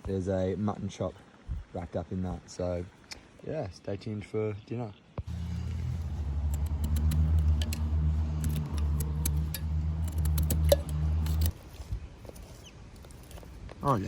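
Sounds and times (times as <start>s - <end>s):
campfire crackling and popping: 5.2s - 11.6s
low steady hum: 5.3s - 14.0s.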